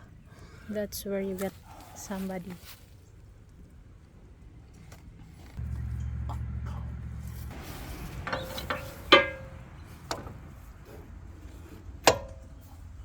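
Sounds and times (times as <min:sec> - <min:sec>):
low hum: 0:04.2 - 0:13.0
metal clanks on steel: 0:05.6 - 0:12.8.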